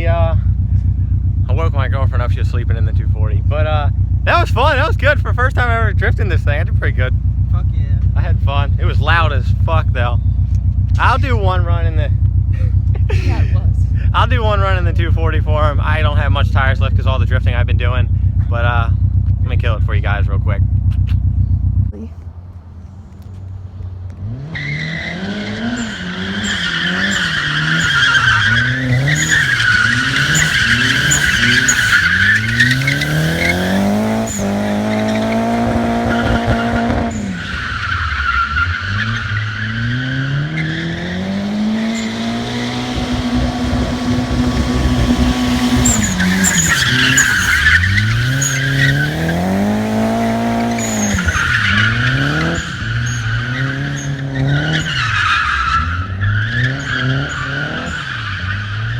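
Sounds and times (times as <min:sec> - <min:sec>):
car engine revving: 0:00.0 - 0:58.9
tyres squealing: 0:24.4 - 0:58.9.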